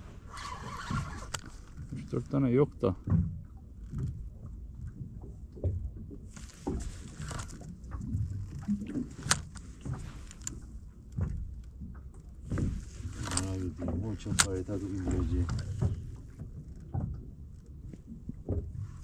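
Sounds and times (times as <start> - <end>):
wind and water rumble: 0.0 - 19.0
sharp clicks and knocks: 6.4 - 17.3.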